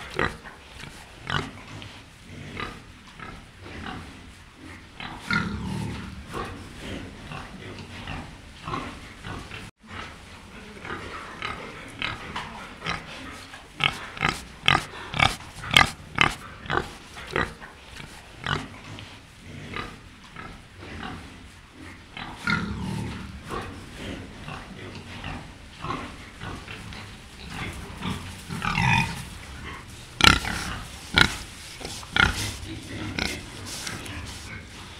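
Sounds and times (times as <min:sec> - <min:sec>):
pigs grunting and snuffling: 0:00.0 - 0:34.9
pig snout rooting in dirt: 0:12.0 - 0:20.0, 0:21.8 - 0:34.9
short sharp pig snorts: 0:12.9 - 0:19.9, 0:21.8 - 0:34.9.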